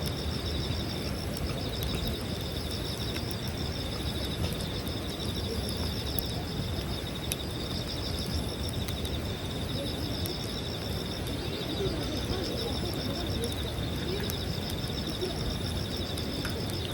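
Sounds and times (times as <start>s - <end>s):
campfire crackling and popping: 0.0s - 16.9s
insects trilling: 0.0s - 16.9s.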